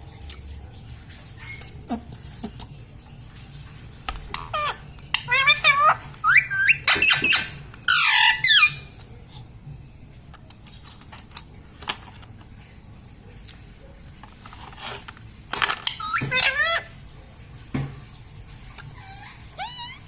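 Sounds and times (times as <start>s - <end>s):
parrot warbling calls: 4.3s - 8.9s, 15.8s - 17.0s, 18.9s - 20.0s
parrot screech: 4.4s - 8.8s, 15.9s - 16.9s, 19.0s - 20.0s.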